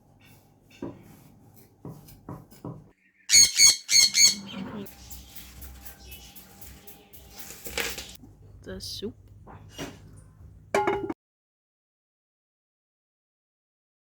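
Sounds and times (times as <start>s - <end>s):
bird calling: 3.2s - 6.9s.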